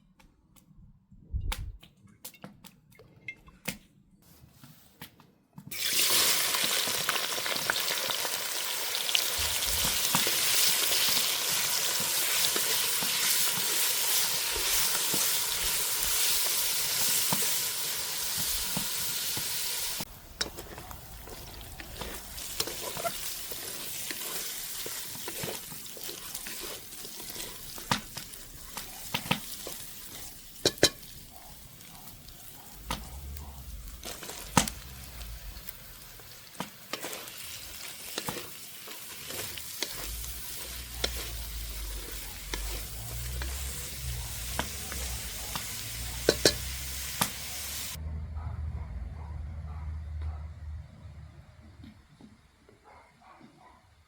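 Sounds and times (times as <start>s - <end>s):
food sizzling in a hot pan: 5.7s - 48.0s
utensil stirring against pan: 9.1s - 48.0s.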